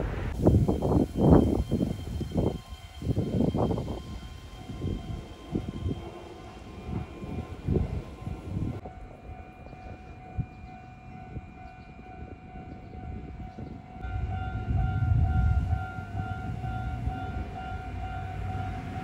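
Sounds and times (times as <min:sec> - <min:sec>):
low rumble: 0:00.0 - 0:01.7
electric train high whine: 0:00.0 - 0:19.0
higher tone pulsing: 0:12.7 - 0:19.0.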